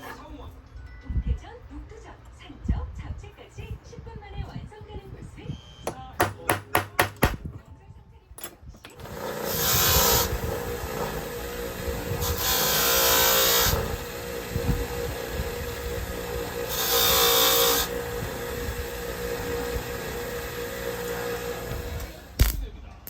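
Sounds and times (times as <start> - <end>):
loud rasping bursts: 9.0 - 22.4
machine motor running: 9.0 - 22.4.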